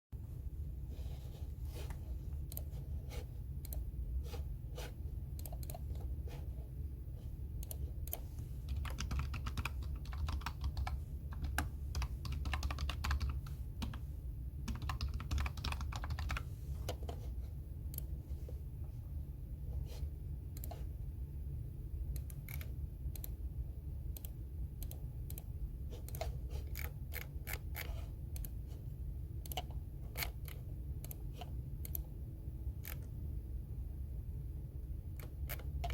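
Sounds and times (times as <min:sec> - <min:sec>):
steady low hum: 0:00.2 - 0:35.9.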